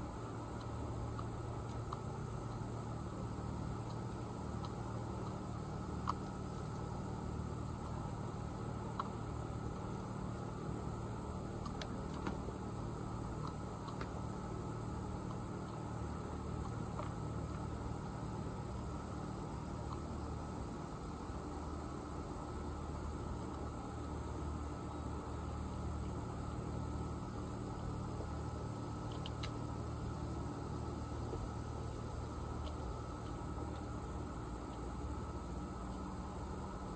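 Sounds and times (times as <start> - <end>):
insects trilling: 0.0 - 36.9
faint sharp ticks: 8.9 - 9.2, 29.0 - 30.1.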